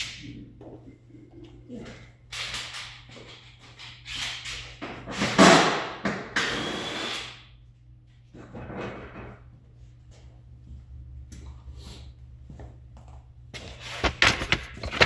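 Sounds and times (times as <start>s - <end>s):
steady low hum: 7.4s - 15.0s
plastic and metal scraping rattling: 13.8s - 15.0s.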